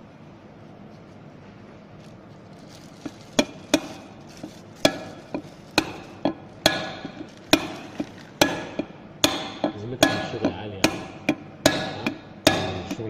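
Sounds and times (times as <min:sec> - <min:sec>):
hammer striking metal: 0:05.8 - 0:13.0.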